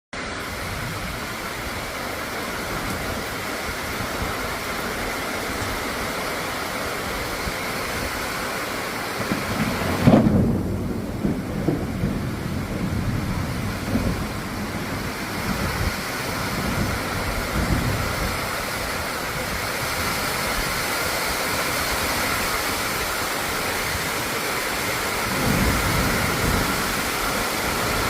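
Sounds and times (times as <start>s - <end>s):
heavy rain hissing: 0.2s - 28.0s
rumble of thunder: 9.1s - 19.4s, 25.2s - 28.0s.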